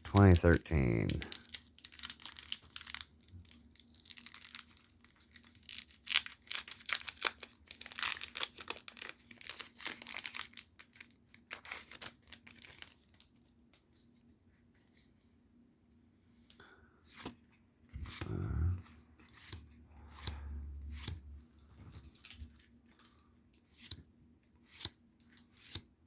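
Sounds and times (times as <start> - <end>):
foil wrapper tearing and crinkling: 1.0 - 13.3.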